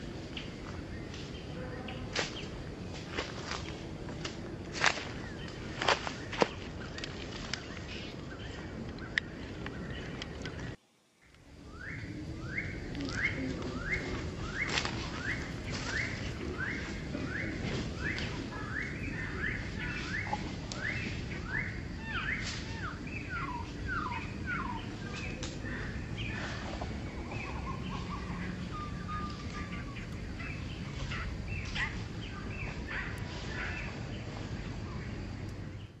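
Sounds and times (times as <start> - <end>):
low background noise: 0.0 - 36.0
bird chirps: 11.7 - 36.0.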